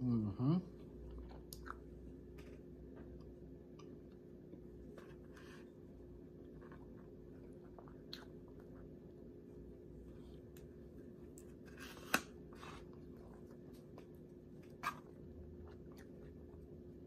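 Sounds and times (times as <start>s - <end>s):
steady low hum: 0.0s - 17.0s
faint chewing: 0.8s - 9.5s, 12.5s - 17.0s.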